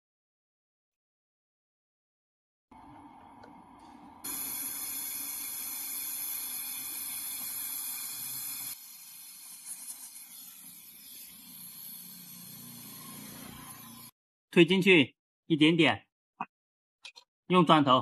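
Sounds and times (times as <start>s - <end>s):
gas hissing: 2.8s - 14.1s.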